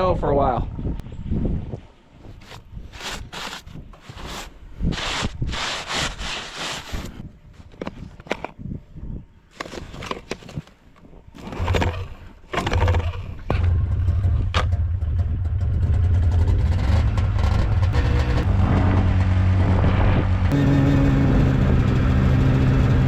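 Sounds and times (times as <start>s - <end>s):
engine starting and running: 11.4s - 23.0s.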